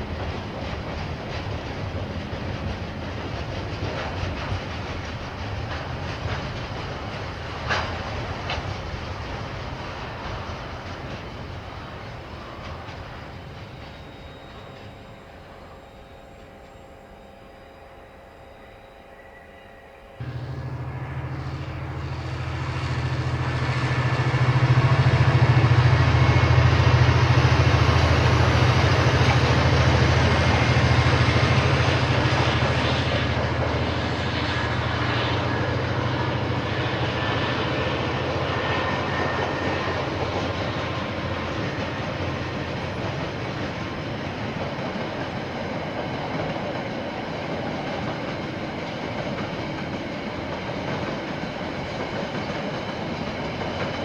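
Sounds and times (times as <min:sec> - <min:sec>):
locomotive engine rumble: 0:20.2 - 0:54.0.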